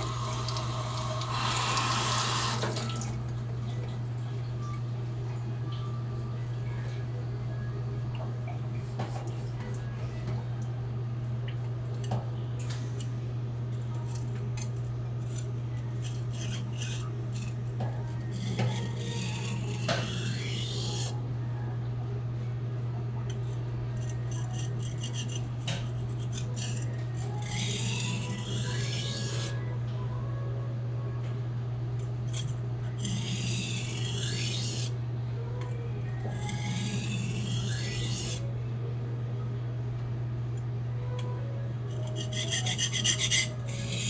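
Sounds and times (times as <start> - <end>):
knife scraping on whetstone: 14.1 - 17.6, 18.3 - 21.2, 24.0 - 29.6, 32.3 - 35.0, 36.3 - 38.4, 41.9 - 44.0.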